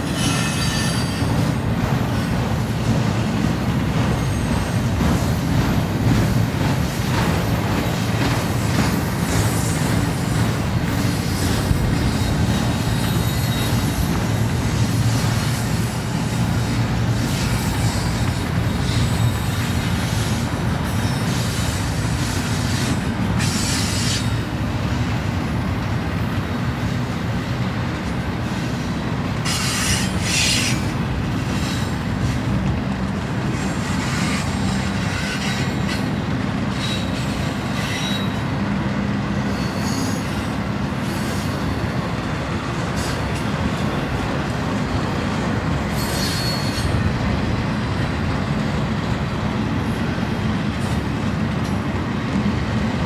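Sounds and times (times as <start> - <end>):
high-pitched wheel squeals: 0.0 - 1.5, 11.3 - 14.2, 36.7 - 38.5, 39.4 - 41.9, 45.8 - 47.1
steel wheels rumbling on rail: 0.0 - 53.0.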